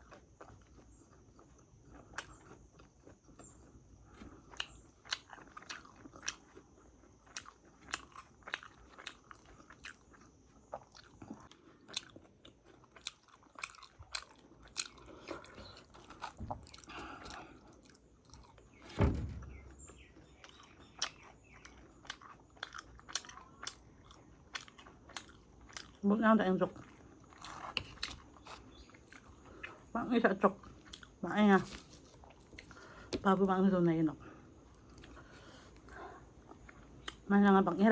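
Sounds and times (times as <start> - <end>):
person chewing crunchy food: 0.0 - 18.9, 19.5 - 26.0, 26.7 - 29.9, 30.5 - 33.3, 34.4 - 37.3
dull thump: 16.4 - 16.8, 18.8 - 20.0.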